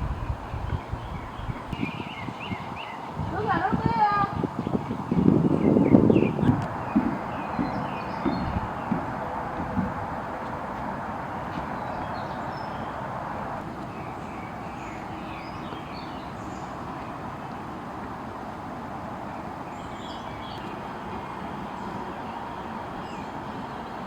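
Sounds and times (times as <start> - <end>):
steady rushing noise: 0.0 - 15.3
small birds chirping: 0.0 - 17.6, 19.3 - 24.0.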